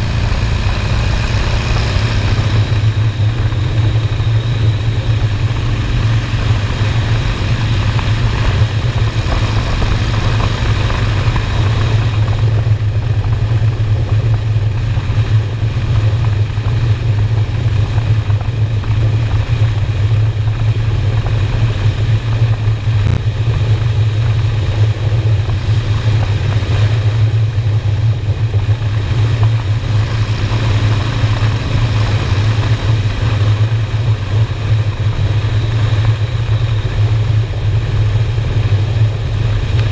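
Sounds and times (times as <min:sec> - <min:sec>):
motorcycle engine cruising: 0:00.0 - 0:39.9
road and wind noise: 0:00.0 - 0:39.9.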